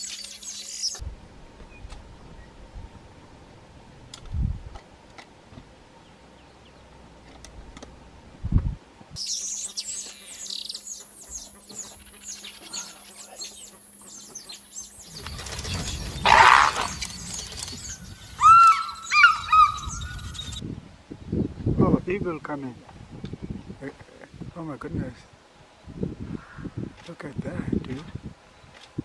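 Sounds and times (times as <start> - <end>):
wild birds chirping: 0.0 - 1.0, 5.8 - 8.2, 9.2 - 20.6
ringing bird calls bending in pitch: 9.2 - 20.6.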